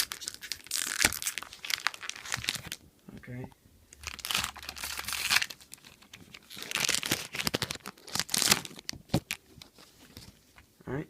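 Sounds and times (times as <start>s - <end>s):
foil wrapper tearing and crinkling: 0.0s - 2.8s, 4.0s - 9.4s.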